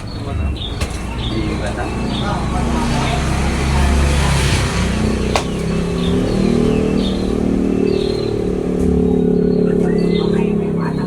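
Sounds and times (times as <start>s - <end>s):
sparrows chirping: 0.0s - 11.0s
vehicle engine running: 0.0s - 11.0s.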